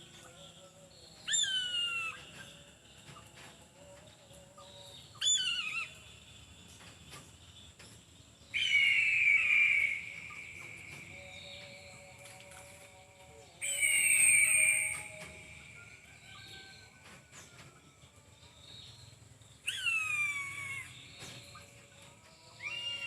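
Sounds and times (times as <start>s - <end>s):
eagle screaming: 8.6s - 10.3s, 19.7s - 20.9s, 22.6s - 23.0s.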